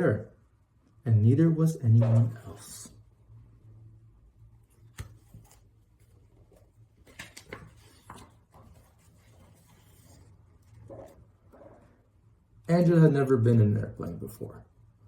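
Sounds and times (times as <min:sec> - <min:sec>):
faint clicks and rustles: 0:04.6 - 0:12.0.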